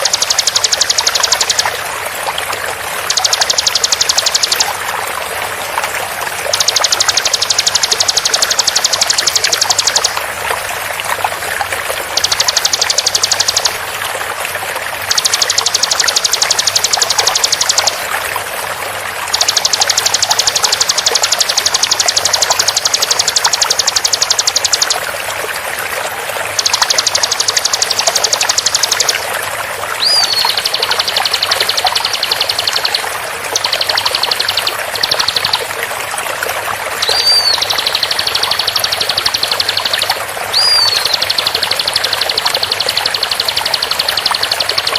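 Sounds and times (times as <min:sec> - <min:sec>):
bird rattling trills: 0:00.0 - 0:01.8, 0:03.0 - 0:04.8, 0:06.4 - 0:10.2, 0:12.0 - 0:13.9, 0:15.0 - 0:18.1, 0:19.3 - 0:25.1, 0:26.5 - 0:29.3, 0:30.0 - 0:35.6, 0:37.0 - 0:44.9
flowing water rushing: 0:00.0 - 0:44.9
bird whistle rising and falling: 0:30.0 - 0:35.6, 0:37.0 - 0:44.9.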